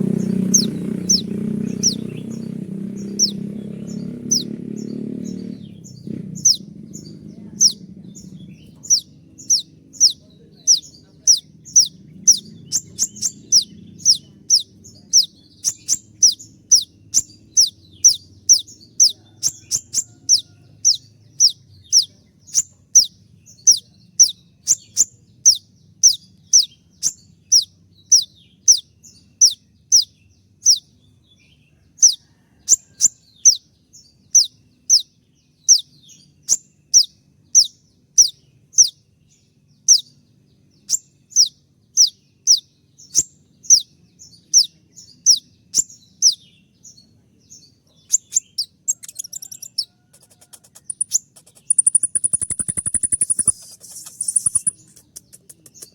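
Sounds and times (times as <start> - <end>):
bird chatter: 0.0 - 55.9
sunbird calling high sharp notes: 50.5 - 55.0.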